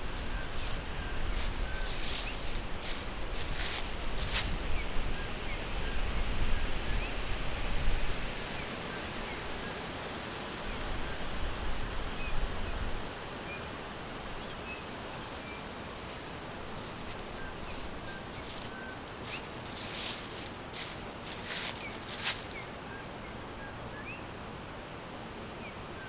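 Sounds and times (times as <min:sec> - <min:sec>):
steady hiss: 0:00.0 - 0:04.8, 0:12.9 - 0:23.0.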